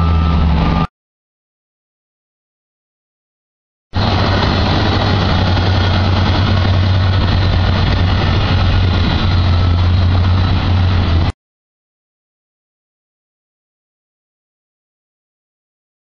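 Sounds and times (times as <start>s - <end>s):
diesel construction machinery humming: 0.0s - 0.9s, 4.0s - 11.3s.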